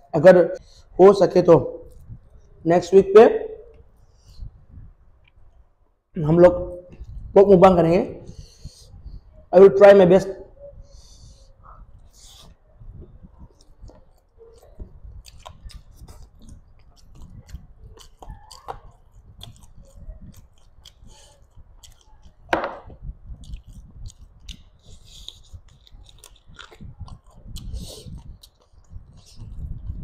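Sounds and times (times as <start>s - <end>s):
chewing and wet mouth clicks: 5.2s - 5.5s, 13.4s - 30.0s.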